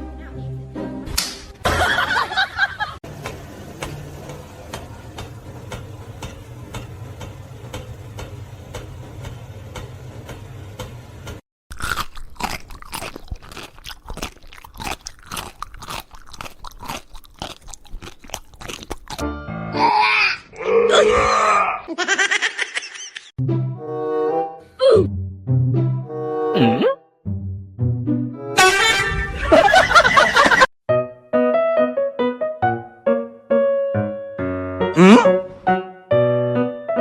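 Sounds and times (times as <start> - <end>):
crunchy chewing: 11.7 - 19.2.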